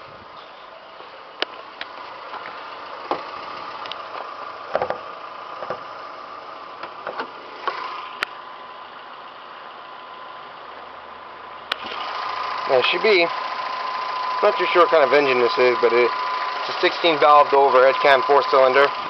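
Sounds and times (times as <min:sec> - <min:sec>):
car engine idling: 0:00.0 - 0:19.0
hood latch clicks and knocks: 0:03.1 - 0:05.0, 0:05.6 - 0:05.9, 0:06.8 - 0:07.8.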